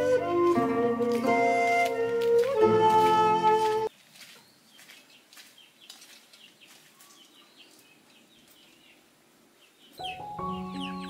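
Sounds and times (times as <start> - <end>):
faint birds chirping: 3.9 - 11.0.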